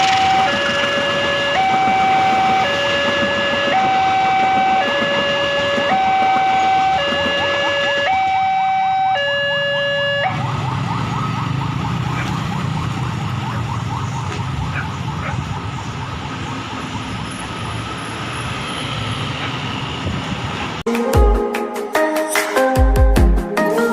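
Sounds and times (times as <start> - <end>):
level crossing alarm: 0.0 - 17.4.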